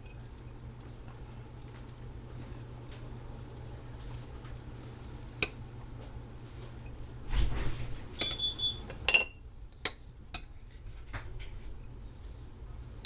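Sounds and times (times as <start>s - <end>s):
spoon scraping a plate: 8.0s - 9.4s
spoon clinking on a plate: 8.2s - 9.4s.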